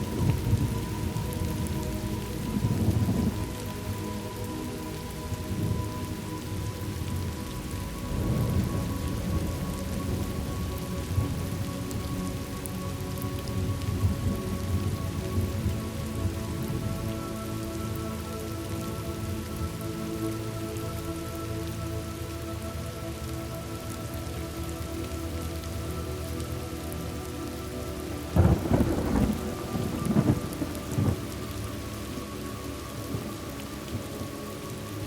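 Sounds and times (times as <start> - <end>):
rain falling: 0.0 - 35.0
thunder rolling: 28.4 - 31.3.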